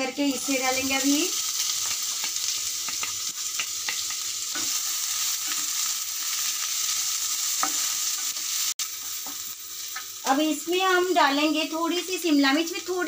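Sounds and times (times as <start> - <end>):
onion sizzling in oil: 0.0 - 13.0
wooden spatula scraping and tapping pan: 1.8 - 4.8.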